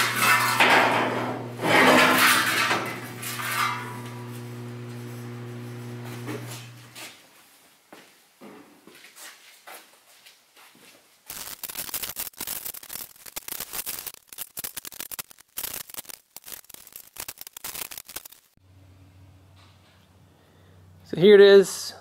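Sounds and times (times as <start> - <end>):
sheet steel scraping and rattling: 0.0 - 4.3.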